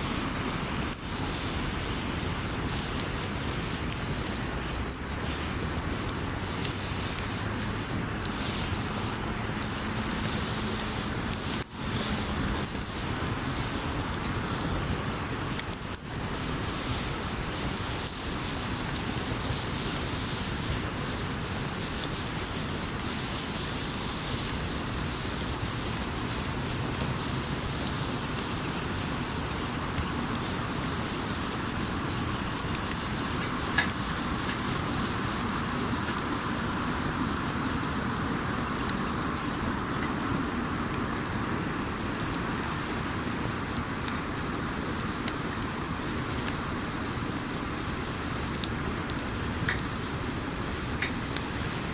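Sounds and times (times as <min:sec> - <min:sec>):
campfire crackling: 0:00.0 - 0:51.9
sharp fire pop: 0:32.4 - 0:36.3.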